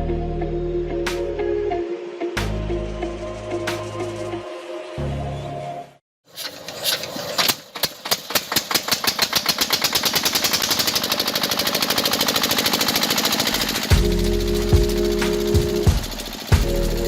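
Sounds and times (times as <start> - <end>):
machine knocking rattle: 7.4 - 17.0.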